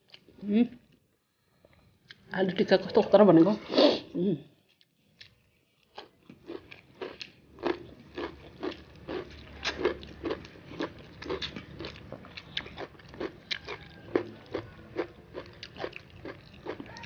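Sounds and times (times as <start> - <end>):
chewing and lip-smacking: 4.7 - 17.0.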